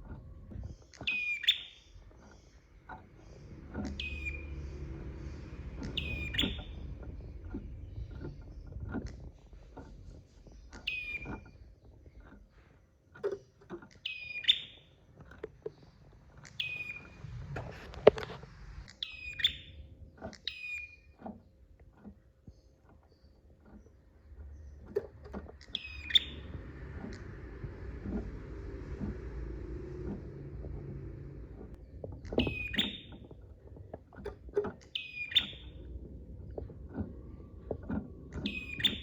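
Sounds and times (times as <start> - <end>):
low rumble: 0.0 - 1.0, 1.8 - 12.5, 15.7 - 20.2, 23.9 - 39.0
bird sharp chirping calls: 0.8 - 2.4, 3.5 - 4.9, 5.8 - 7.3, 10.5 - 11.6, 14.0 - 14.9, 16.4 - 17.2, 18.9 - 19.8, 25.6 - 27.3, 32.2 - 33.3, 34.9 - 35.9, 38.3 - 39.0.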